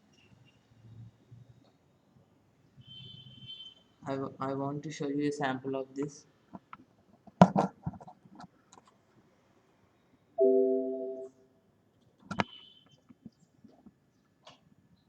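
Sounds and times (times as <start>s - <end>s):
brief high beep: 10.4s - 11.3s
electronic chime: 10.4s - 11.3s.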